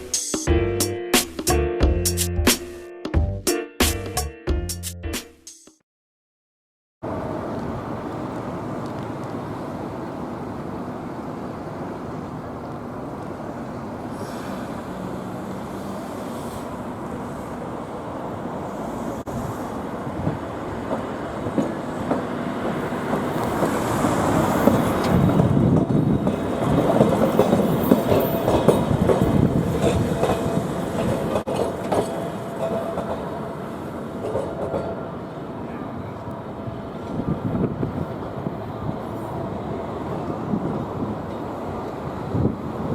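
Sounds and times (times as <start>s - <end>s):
tram running on rails: 0.0s - 2.5s, 7.0s - 42.9s
wheels clicking over track: 20.2s - 33.4s.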